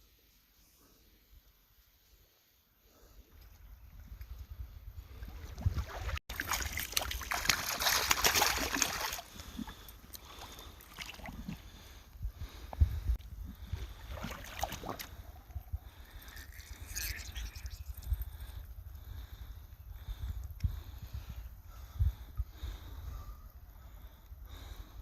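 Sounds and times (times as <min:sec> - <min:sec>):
wind buffeting microphone: 0:11.7 - 0:23.3.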